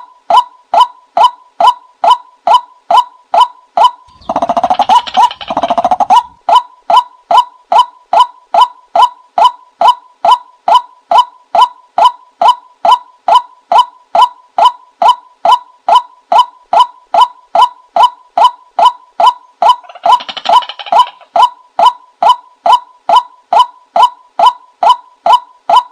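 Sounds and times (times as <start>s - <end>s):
bird calling hooked notes: 3.4s - 10.0s, 15.0s - 22.4s.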